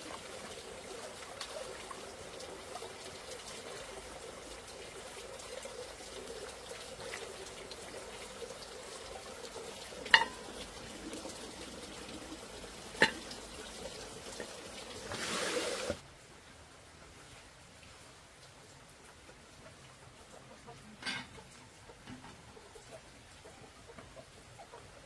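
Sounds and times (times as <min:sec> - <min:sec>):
food sizzling in a pan: 0:10.1 - 0:10.6.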